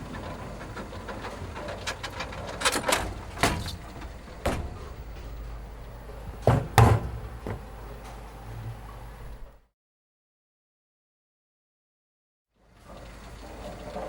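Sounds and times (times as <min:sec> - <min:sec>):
heavy thuds: 0:03.1 - 0:08.0.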